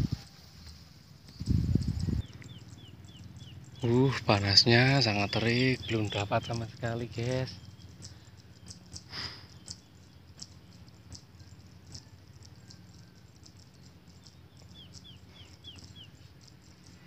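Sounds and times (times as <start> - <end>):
small birds chipping: 0.0 - 17.0
downward-slurred bird notes: 2.2 - 9.0.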